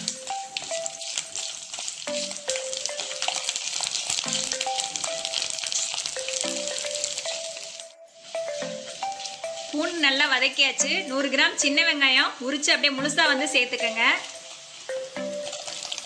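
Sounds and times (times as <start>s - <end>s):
ladle stirring in pot: 0.0s - 10.7s, 13.5s - 16.0s
spices sizzling in hot oil: 0.0s - 16.0s.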